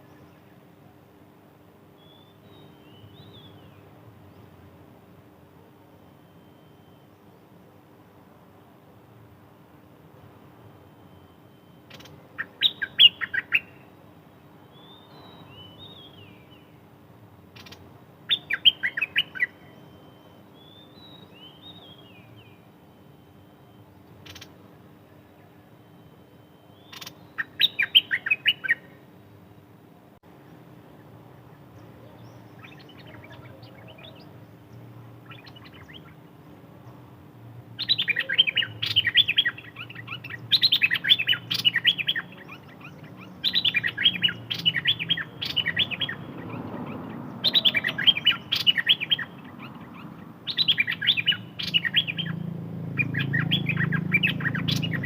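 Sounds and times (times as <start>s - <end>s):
songbird singing: 0.0s - 55.0s.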